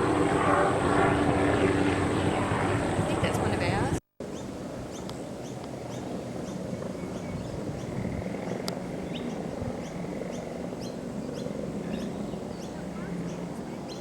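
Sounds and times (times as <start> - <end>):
small birds chirping: 4.2 - 14.0.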